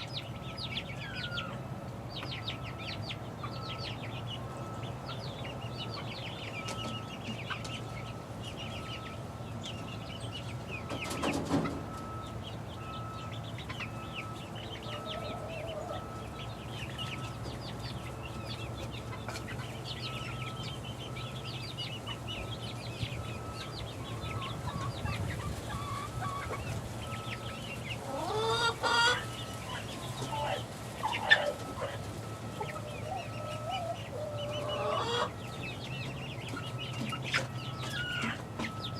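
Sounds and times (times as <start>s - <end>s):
chickens peeping: 0.0s - 38.9s
rustle: 0.0s - 38.9s.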